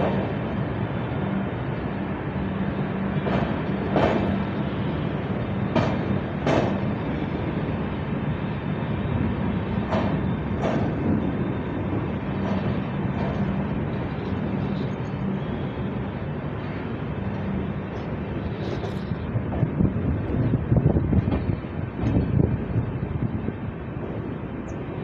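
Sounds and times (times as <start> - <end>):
train coach rolling rumble: 0.0 - 25.0
wheel clacks over rail joints: 3.2 - 4.5, 5.7 - 7.0, 9.8 - 11.4, 12.2 - 15.0.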